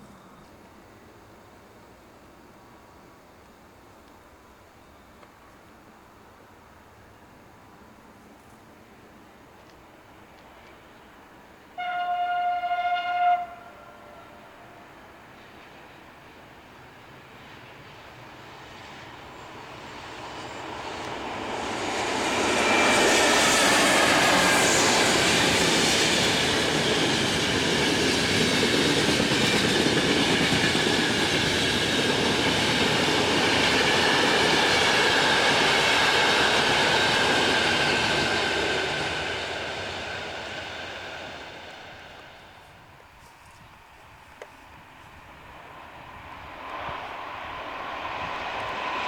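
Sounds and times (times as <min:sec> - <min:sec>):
train passing: 0:00.0 - 0:49.0
wheel and rail noise: 0:13.4 - 0:49.0.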